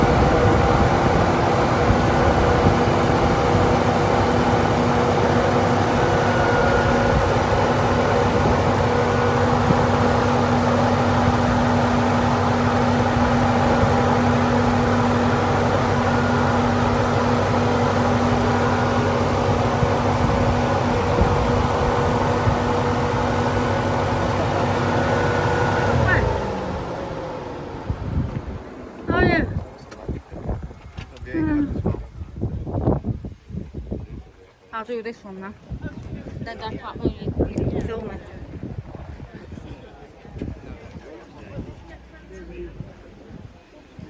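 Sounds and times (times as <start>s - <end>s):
car engine running: 0.0s - 32.0s.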